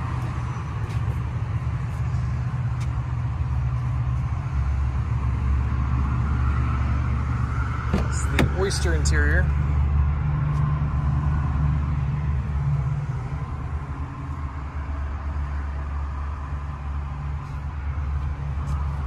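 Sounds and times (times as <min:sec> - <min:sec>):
car engine idling: 0:06.9 - 0:19.0.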